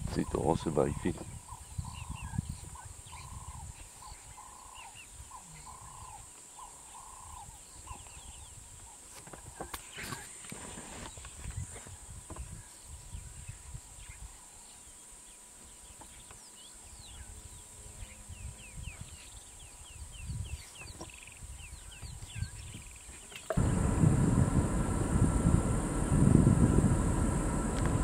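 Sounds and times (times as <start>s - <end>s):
birds chirping: 21.8s - 28.0s
loud vehicle rumble: 23.6s - 28.0s
low wind rumble: 23.6s - 28.0s.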